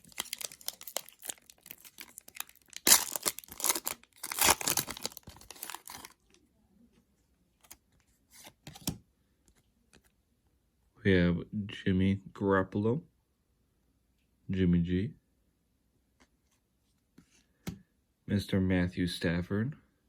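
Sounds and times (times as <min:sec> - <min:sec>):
foil card pack tearing: 0:00.0 - 0:06.2
wrapper crinkling: 0:00.0 - 0:06.4.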